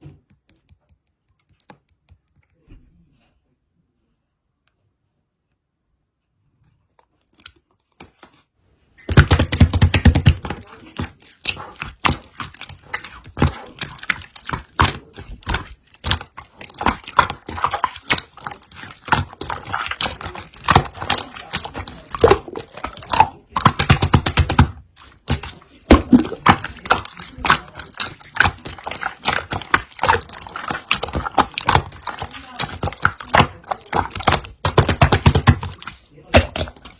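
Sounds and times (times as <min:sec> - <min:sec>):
slime squished by hand: 0:09.0 - 0:36.9.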